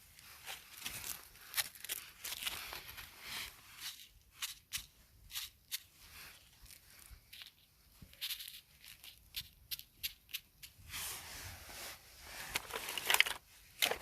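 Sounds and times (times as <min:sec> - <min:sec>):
crisp snips and crunches: 0:00.4 - 0:03.1.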